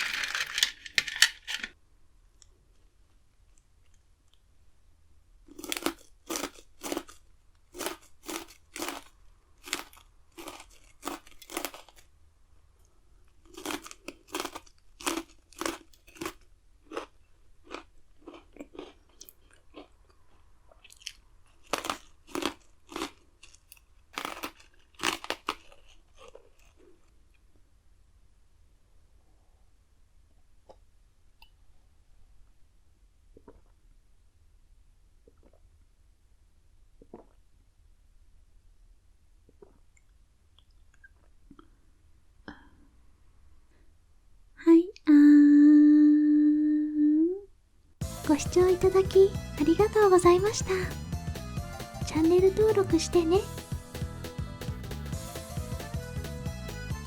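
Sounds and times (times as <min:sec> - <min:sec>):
biscuit sticks crunching: 0:00.0 - 0:01.7, 0:05.5 - 0:12.1, 0:13.3 - 0:27.4.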